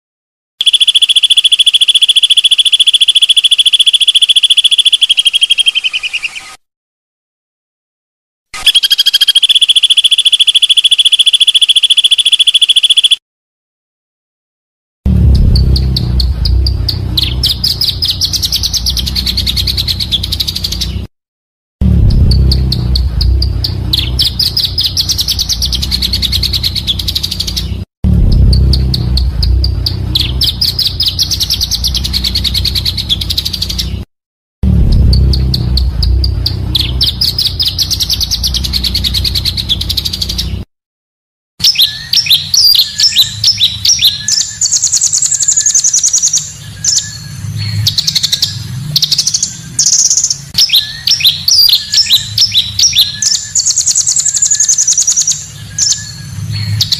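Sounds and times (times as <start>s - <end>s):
bird song trills and chirps: 0.6s - 6.6s, 8.6s - 13.2s, 15.4s - 21.1s, 22.1s - 34.1s, 35.0s - 40.7s, 41.6s - 56.9s
low hum: 15.1s - 20.5s, 21.8s - 27.4s, 28.0s - 33.3s, 34.6s - 40.0s.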